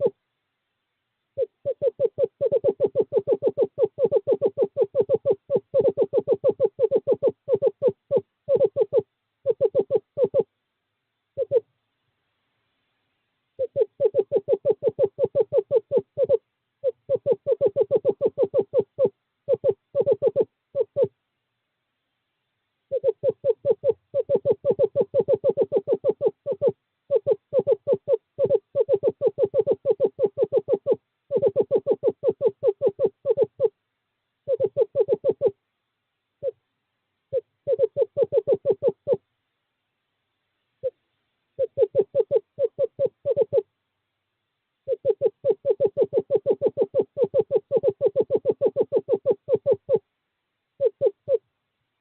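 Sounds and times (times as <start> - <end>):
owl trilling hoots: 0.0 - 0.2, 1.4 - 10.5, 11.3 - 11.7, 13.6 - 21.2, 22.9 - 33.8, 34.4 - 35.6, 36.4 - 36.6, 37.3 - 39.2, 40.8 - 41.0, 41.6 - 43.7, 44.8 - 50.1, 50.8 - 51.5.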